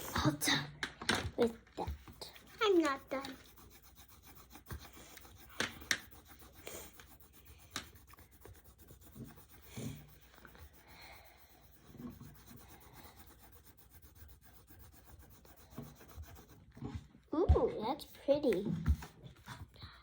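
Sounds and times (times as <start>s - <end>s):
pencil scratching on paper: 1.7s - 19.8s
pencil clicking against table: 1.9s - 9.4s.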